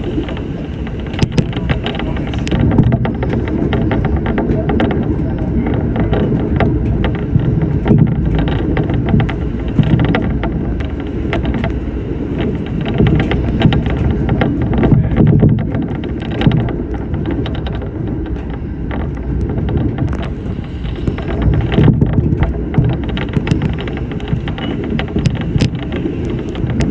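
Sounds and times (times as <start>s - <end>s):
sharp clicks and knocks: 0.0s - 26.9s
train wheels rumbling on rail: 0.0s - 26.9s.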